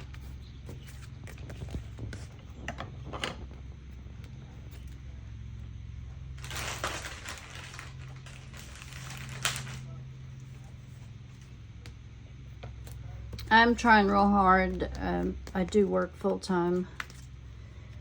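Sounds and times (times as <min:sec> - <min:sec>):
steady low hum: 0:00.0 - 0:18.0
paper rustling: 0:06.4 - 0:11.5.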